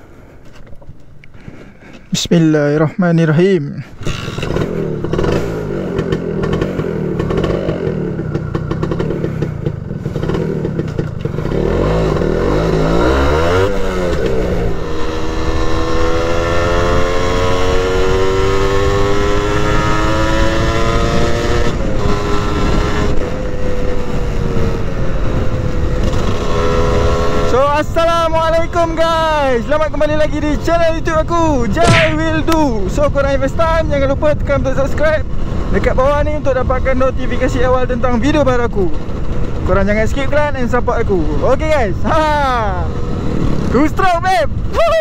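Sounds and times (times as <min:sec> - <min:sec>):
motorcycle engine revving: 0:04.0 - 0:27.6.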